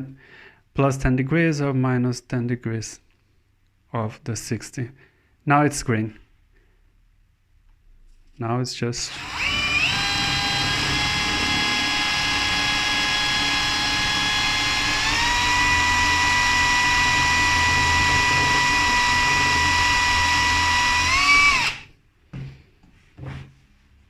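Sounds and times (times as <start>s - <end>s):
cordless drill whining: 9.1s - 22.0s.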